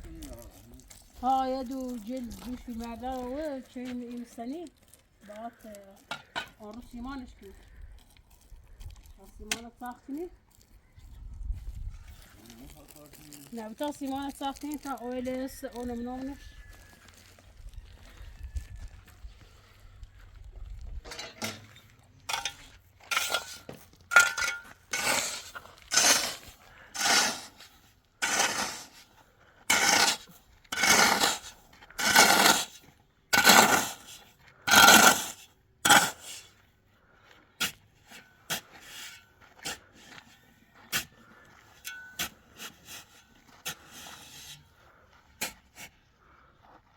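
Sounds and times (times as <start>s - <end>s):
shovel scraping sand and cement: 21.1s - 36.7s, 37.6s - 46.1s.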